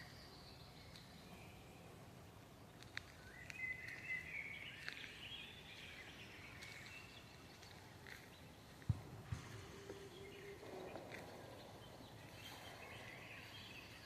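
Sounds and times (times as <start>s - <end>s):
low forest ambience: 0.0s - 14.0s
songbird chattering song: 0.0s - 14.0s
footsteps on forest floor: 2.8s - 14.0s.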